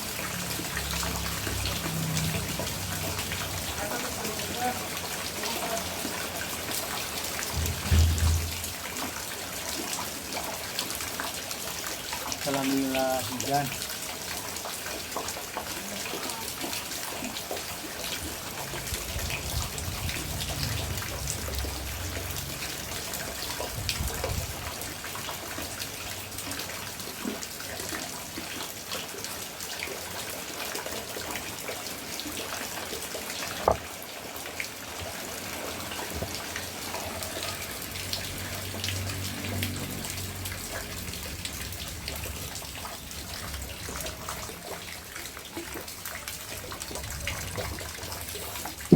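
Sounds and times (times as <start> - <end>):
rain drops ticking and splashing: 0.0 - 48.9
sharp knock: 7.5 - 8.7.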